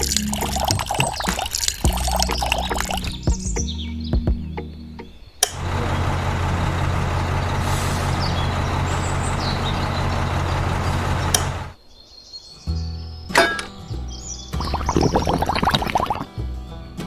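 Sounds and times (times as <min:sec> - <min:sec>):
machine switch click: 0:13.3 - 0:13.8.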